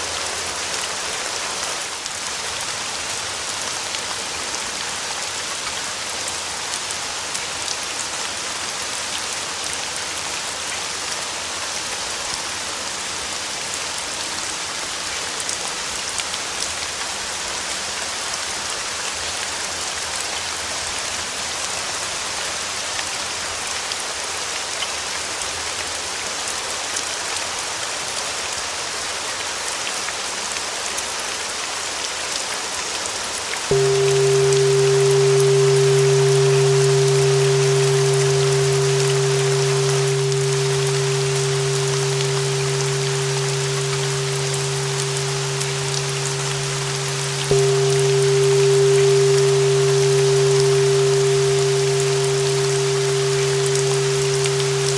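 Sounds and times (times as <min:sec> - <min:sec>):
rain falling: 0:33.7 - 0:54.9
steady tone: 0:33.7 - 0:54.9.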